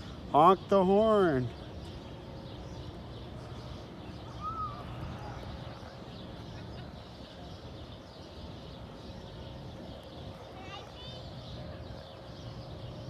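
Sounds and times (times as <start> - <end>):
river background noise: 0.0 - 13.0
faint bird call: 4.1 - 7.5.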